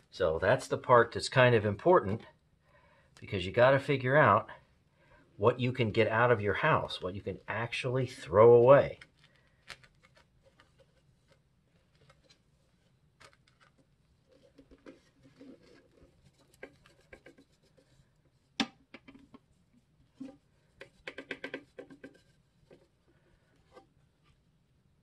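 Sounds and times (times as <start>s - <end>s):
plastic clicks and scraping: 13.2s - 17.6s, 20.2s - 22.9s.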